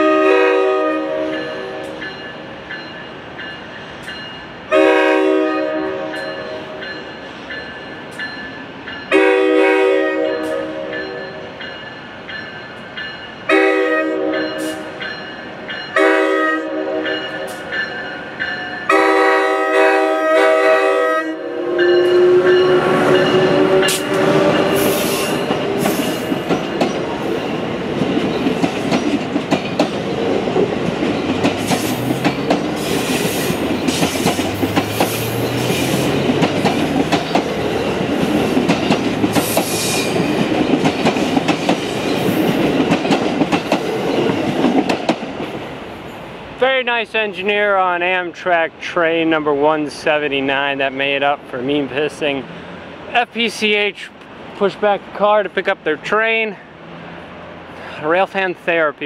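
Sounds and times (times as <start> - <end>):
train horn blasts: 0.0 - 2.0, 4.7 - 6.8, 9.1 - 11.4, 13.5 - 14.9, 16.0 - 17.6, 18.8 - 25.5
passenger train rushing past: 0.0 - 59.0.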